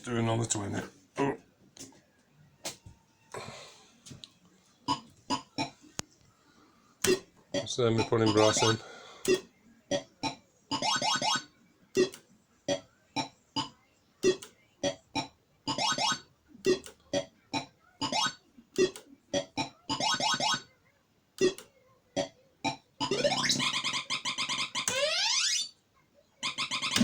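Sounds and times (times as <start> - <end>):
electronic bleeps and chirps: 23.0 - 25.8.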